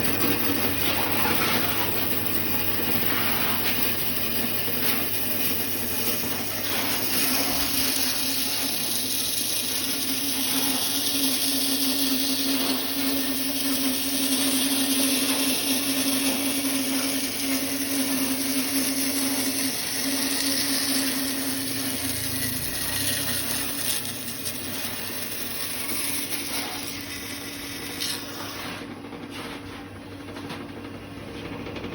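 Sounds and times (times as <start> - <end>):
power tool cutting wood: 0.0 - 28.9.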